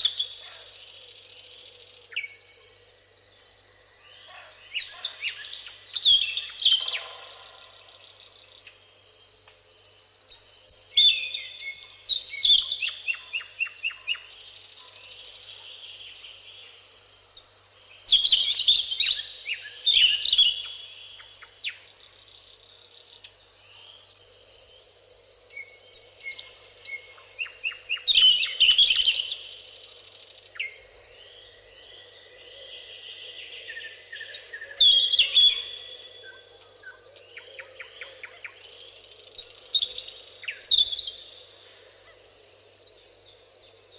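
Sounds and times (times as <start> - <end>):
songbird singing: 0.0 - 43.9.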